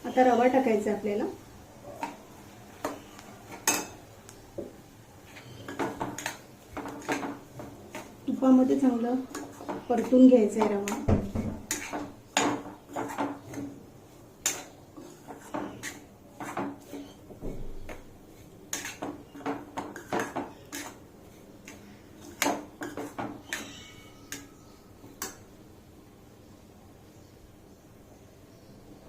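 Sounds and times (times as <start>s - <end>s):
spatula scraping a pan: 1.9s - 4.0s, 5.2s - 25.4s.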